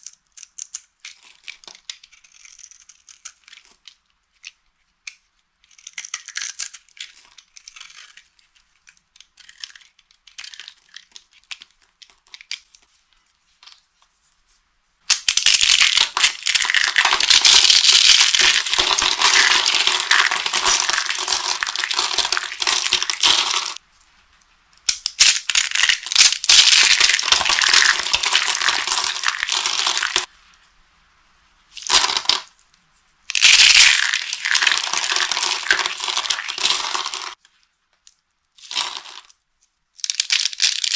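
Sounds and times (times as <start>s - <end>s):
dry soap crunching: 15.1s - 23.8s, 24.8s - 30.3s, 33.3s - 37.4s.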